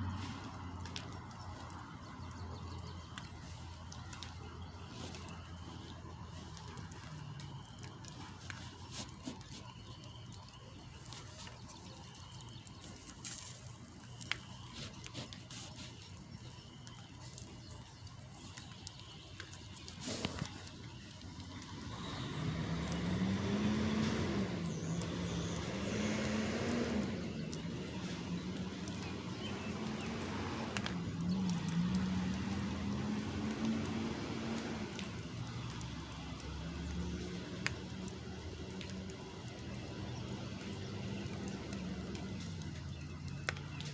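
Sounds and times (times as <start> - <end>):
truck engine revving: 20.0 - 43.8.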